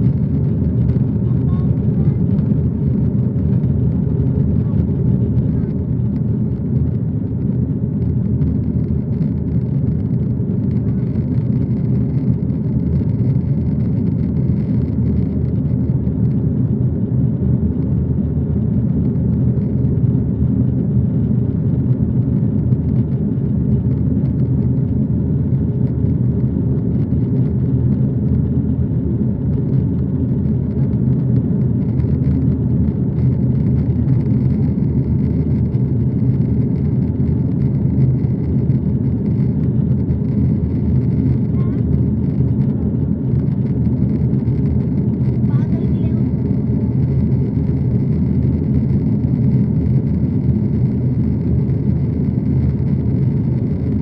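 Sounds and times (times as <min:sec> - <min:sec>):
aeroplane engine drone: 0:00.0 - 0:54.0.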